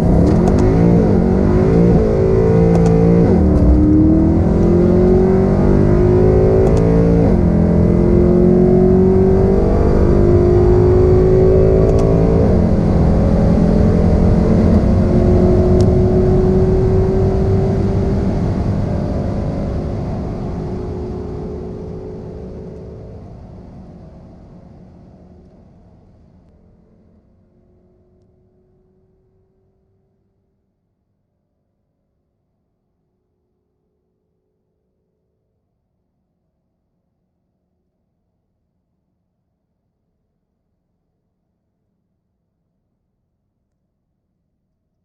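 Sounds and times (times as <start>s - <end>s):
car engine accelerating: 0.0s - 24.8s.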